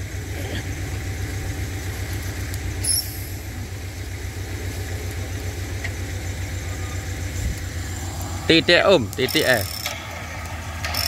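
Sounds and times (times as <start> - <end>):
engine idling: 0.0 - 11.0
short high-pitched chirp: 2.8 - 3.4.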